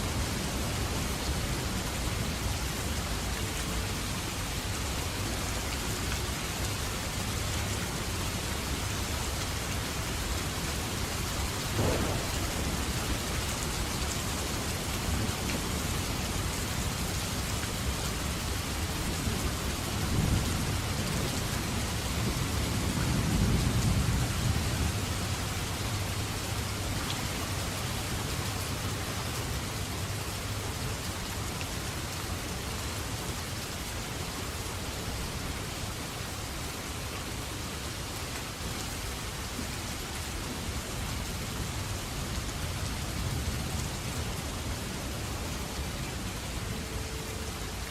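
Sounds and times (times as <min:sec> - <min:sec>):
heavy rain falling: 0:00.0 - 0:47.9
thunder rumbling: 0:11.5 - 0:17.0.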